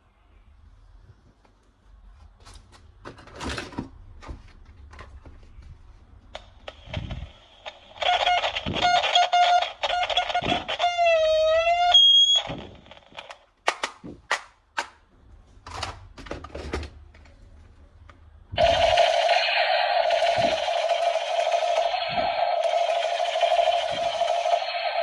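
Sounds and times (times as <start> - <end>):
toy electronic buzzing tone: 8.0 - 12.5.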